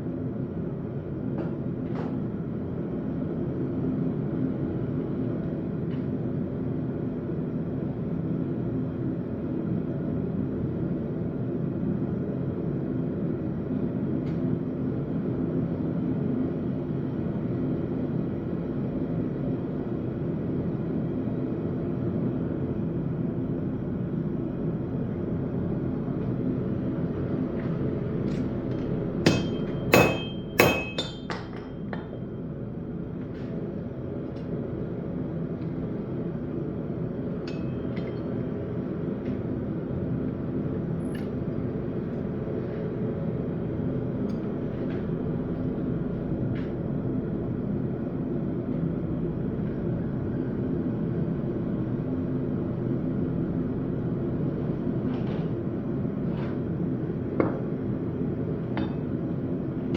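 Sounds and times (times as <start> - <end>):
steady low hum: 0.0 - 59.9
hammer blows on hot steel: 29.2 - 32.1.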